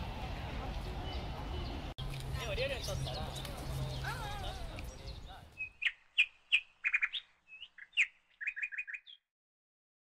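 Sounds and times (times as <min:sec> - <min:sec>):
small bird chirping: 0:02.8 - 0:09.3.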